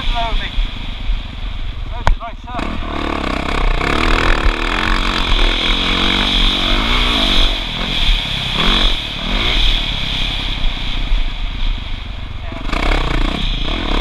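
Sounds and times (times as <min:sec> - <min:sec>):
wind rush on microphone: 0:00.0 - 0:14.0
dirt bike engine revving: 0:01.8 - 0:11.2, 0:12.3 - 0:14.0.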